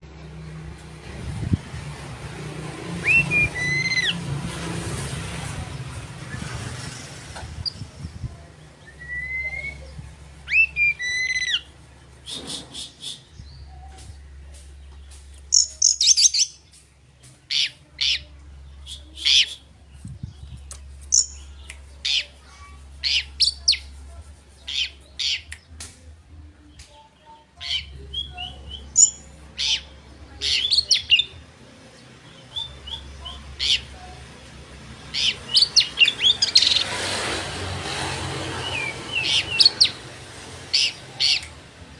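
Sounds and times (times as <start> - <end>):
bird singing whistled notes: 3.0 - 4.2, 8.8 - 13.9.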